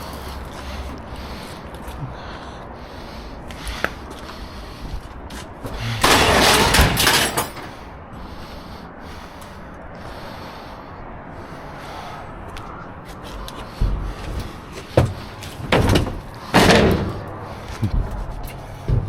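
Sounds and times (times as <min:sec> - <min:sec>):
scrap metal clattering crash: 0:05.9 - 0:07.8, 0:15.6 - 0:17.3.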